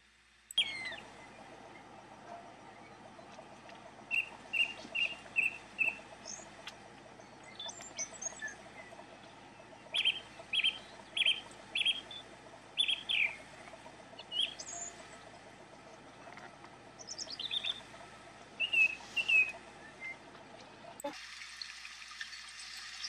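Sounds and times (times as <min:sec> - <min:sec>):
songbird short evenly spaced notes: 0:00.4 - 0:21.1
higher bird chirps: 0:00.5 - 0:03.4, 0:04.0 - 0:15.4, 0:17.0 - 0:18.0, 0:18.6 - 0:20.2.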